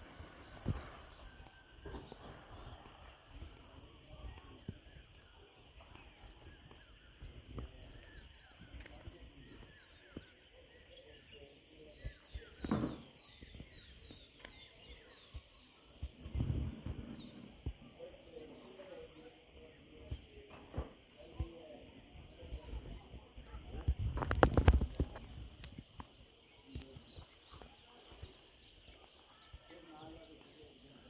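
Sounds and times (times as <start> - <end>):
faint bird chirping: 0.0 - 31.0
low rumbles and thumps: 16.0 - 17.8.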